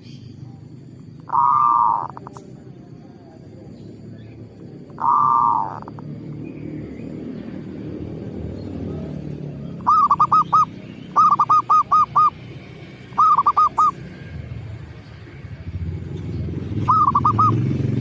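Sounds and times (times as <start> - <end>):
dove cooing: 1.1 - 3.2, 4.7 - 6.2, 8.9 - 14.2, 16.6 - 18.0.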